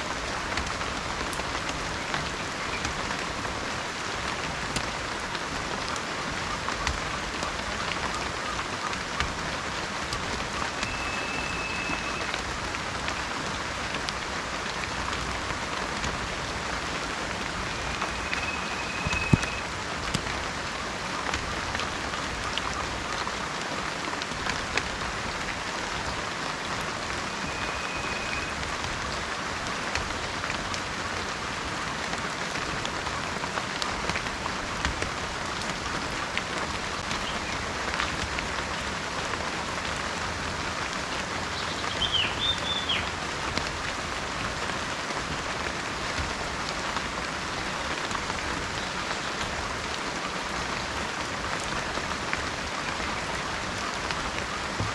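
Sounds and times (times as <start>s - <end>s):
heavy rain falling: 0.0s - 54.9s
raindrop ticks: 0.0s - 54.9s.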